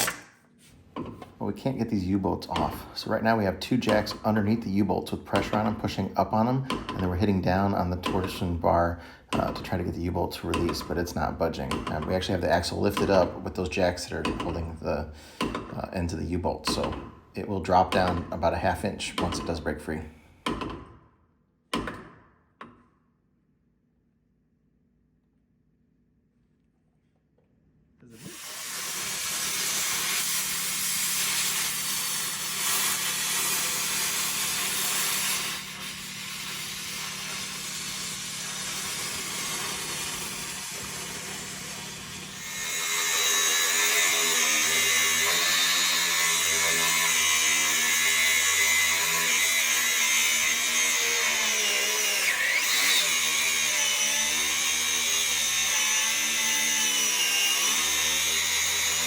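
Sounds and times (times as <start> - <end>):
power tool on steel: 28.1 - 59.0.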